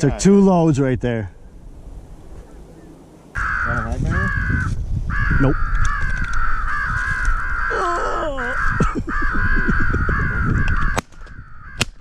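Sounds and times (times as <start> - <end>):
crows cawing: 2.4 - 12.0
wind rumbling on microphone: 3.4 - 12.0.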